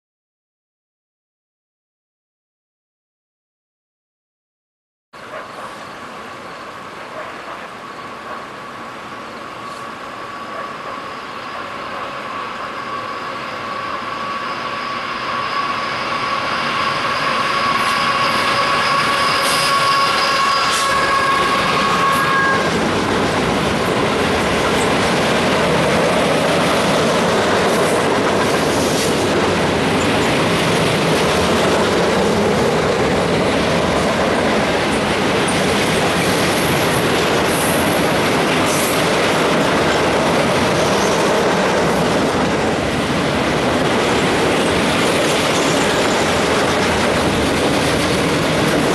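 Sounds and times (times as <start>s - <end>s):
freight train wheels rumbling: 5.3s - 48.9s
high whining tones: 9.6s - 28.9s.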